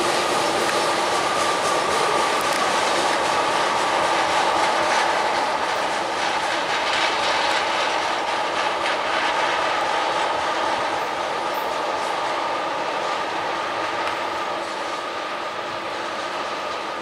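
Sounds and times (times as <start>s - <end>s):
tank cars rolling on rails: 0.0s - 12.4s.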